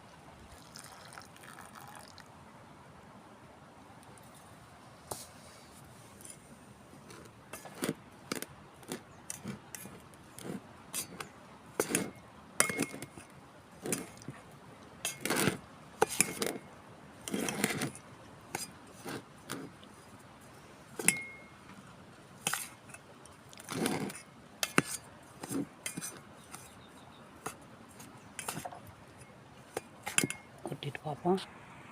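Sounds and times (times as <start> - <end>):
metal spoon scraping steel vessel: 7.1 - 13.2, 13.8 - 14.3, 15.0 - 16.6, 17.2 - 18.0, 21.0 - 21.5, 23.6 - 26.8, 27.4 - 30.5.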